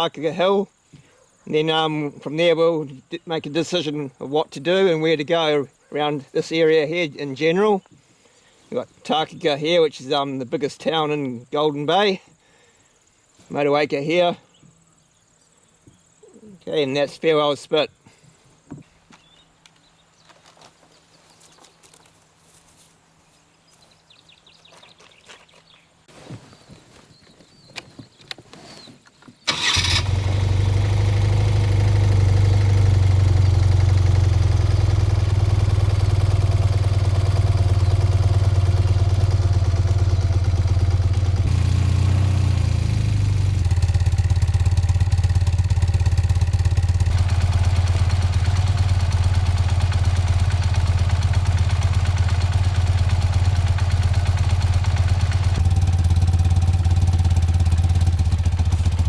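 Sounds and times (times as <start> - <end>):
motorcycle engine droning: 29.5 - 59.0.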